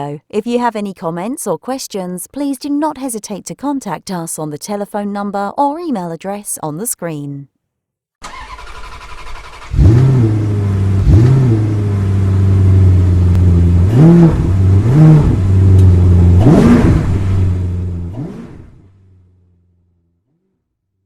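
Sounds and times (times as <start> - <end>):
car engine idling: 8.2 - 20.4.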